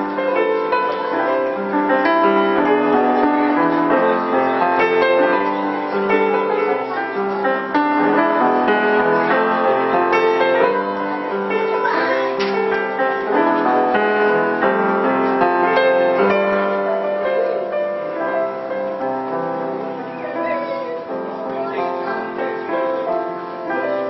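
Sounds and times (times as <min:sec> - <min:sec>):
piano melody with chords: 0:00.0 - 0:24.0.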